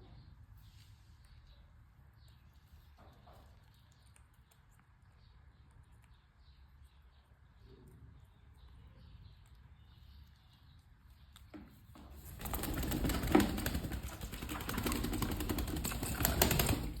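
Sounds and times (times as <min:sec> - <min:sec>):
bird wings fluttering: 0:12.2 - 0:17.0.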